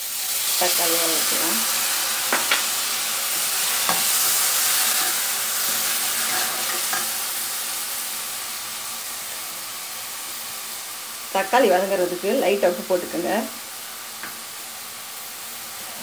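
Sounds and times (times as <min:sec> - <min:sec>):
tomato sizzling in hot oil: 0:00.0 - 0:16.0
spatula scraping pan: 0:03.6 - 0:07.2.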